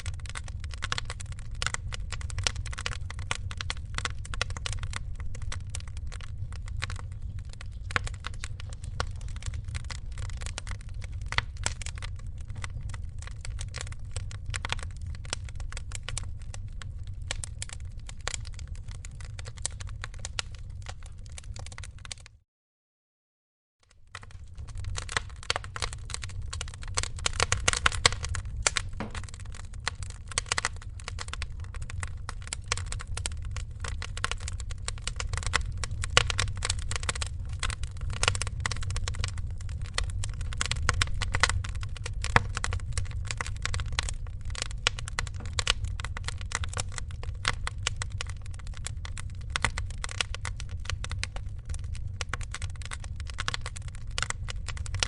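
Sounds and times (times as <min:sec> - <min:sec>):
wood fire crackling: 0:00.0 - 0:22.3, 0:23.9 - 0:55.0.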